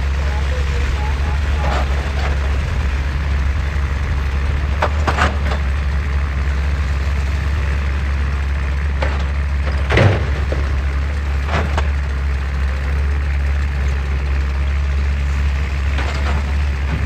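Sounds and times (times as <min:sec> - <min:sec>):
excavator diesel engine droning: 0:00.0 - 0:17.0.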